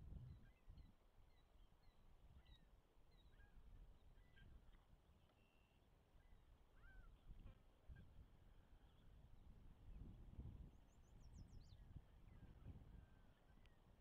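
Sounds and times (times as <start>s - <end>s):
faint bird chirps: 5.3s - 7.2s.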